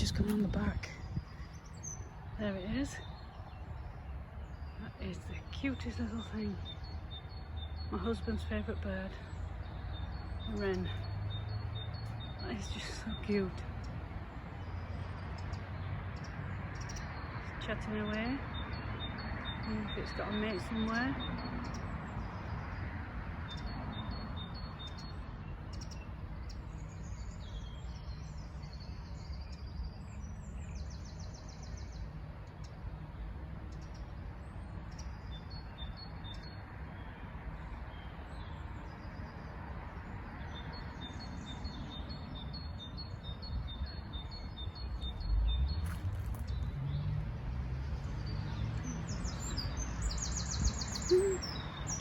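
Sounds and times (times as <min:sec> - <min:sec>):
wren singing high trills: 0:00.0 - 0:22.8, 0:48.0 - 0:52.0
small birds chirping: 0:00.0 - 0:52.0.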